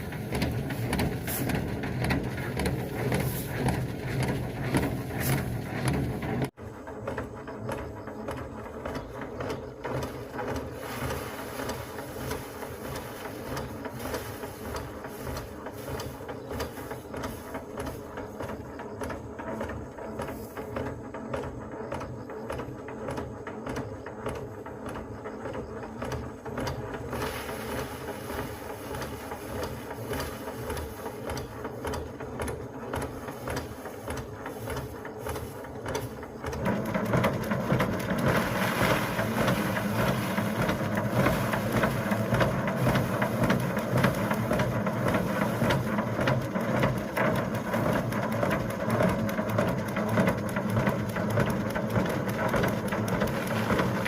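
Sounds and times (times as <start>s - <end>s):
motor-driven machine running: 0.0s - 54.0s.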